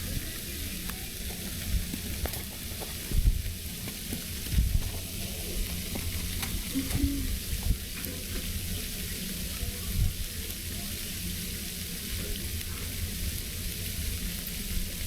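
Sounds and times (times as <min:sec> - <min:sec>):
small crackles: 0:00.0 - 0:15.0
steady hiss: 0:00.0 - 0:15.0
wind rumbling on microphone: 0:01.7 - 0:03.7, 0:04.4 - 0:08.0.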